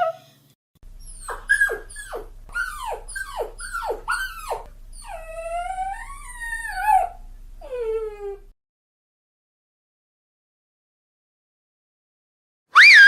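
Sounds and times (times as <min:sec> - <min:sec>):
dog howling: 0:00.9 - 0:08.5
dog yelping: 0:00.9 - 0:08.5.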